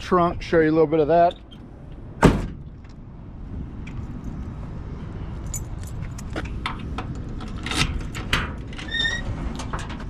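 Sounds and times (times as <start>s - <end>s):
car keys jangling: 5.4s - 6.4s.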